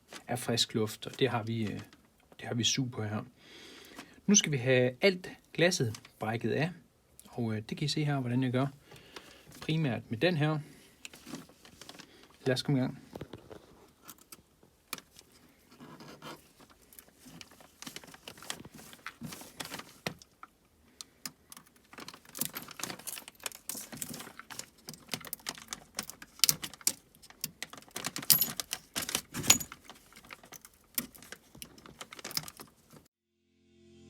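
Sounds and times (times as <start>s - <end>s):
glass cracking and clicking: 21.5s - 32.7s.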